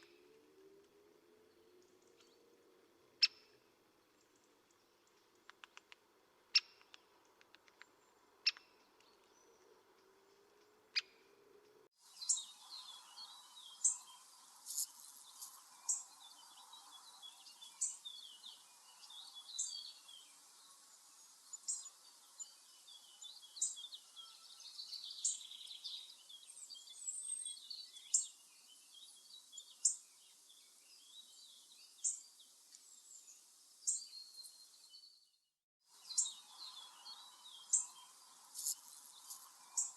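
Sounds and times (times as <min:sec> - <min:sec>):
faint clicks: 0:04.7 - 0:11.8
birds chirping and calling: 0:07.8 - 0:11.3, 0:36.0 - 0:39.9.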